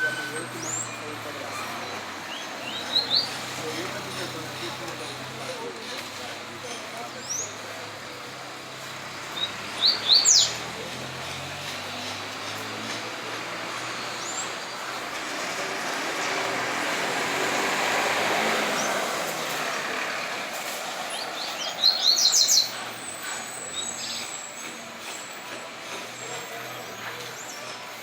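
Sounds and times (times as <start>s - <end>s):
vehicle passing: 8.1s - 23.8s.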